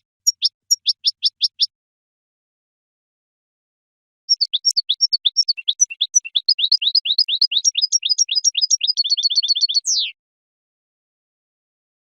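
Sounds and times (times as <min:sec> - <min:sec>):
finch singing trill: 0:00.0 - 0:01.7, 0:04.3 - 0:10.2.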